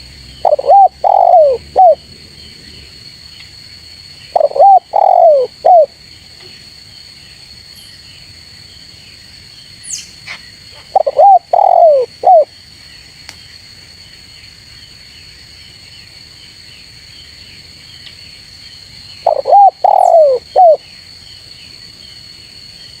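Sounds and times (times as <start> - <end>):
high insect drone: 0.0 - 23.0
dove cooing: 0.4 - 2.0, 4.3 - 5.9, 10.8 - 12.5, 19.2 - 20.8
faint bird chirps: 9.7 - 12.5, 19.0 - 22.1.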